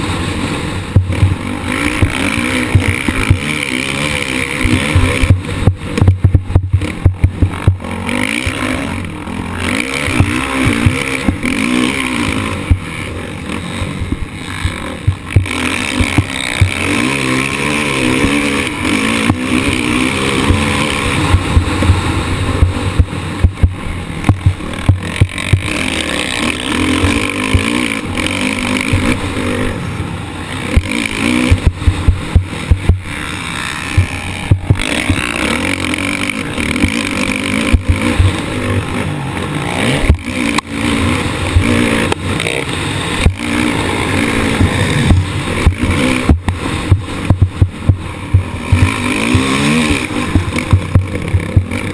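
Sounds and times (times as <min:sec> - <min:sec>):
motocross bike engine revving: 0:00.0 - 0:51.9.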